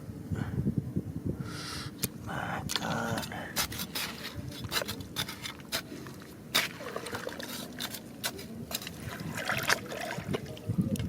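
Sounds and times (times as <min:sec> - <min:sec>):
water trickling and sloshing: 0:04.2 - 0:11.0.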